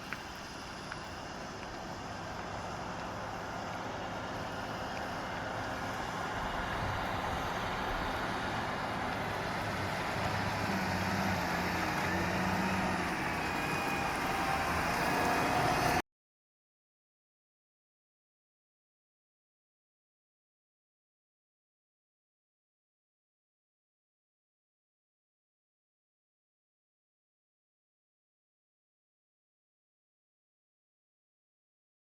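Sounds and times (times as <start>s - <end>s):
heavy vehicle engine running: 0.0s - 16.0s.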